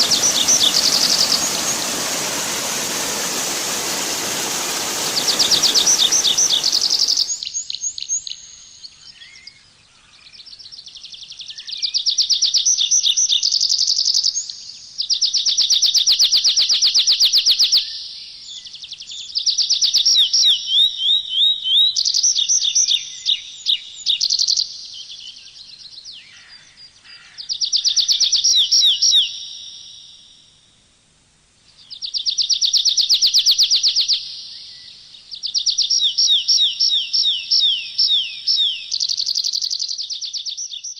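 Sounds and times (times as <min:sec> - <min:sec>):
rushing water: 0:00.0 - 0:07.4
songbird trilling: 0:04.9 - 0:07.4.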